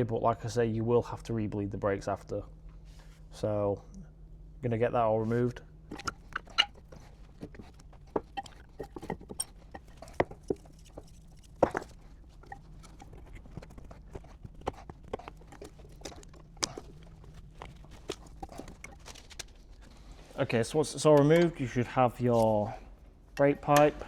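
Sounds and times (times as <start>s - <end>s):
hand tools clicking on metal: 5.9s - 19.6s.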